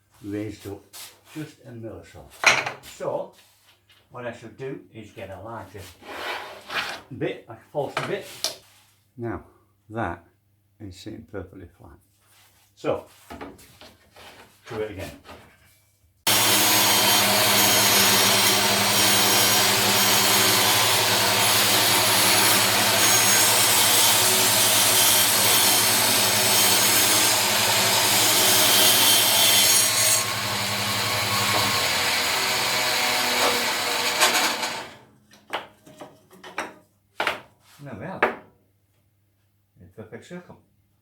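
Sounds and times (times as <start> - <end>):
bandsaw cutting wood: 16.3 - 35.1.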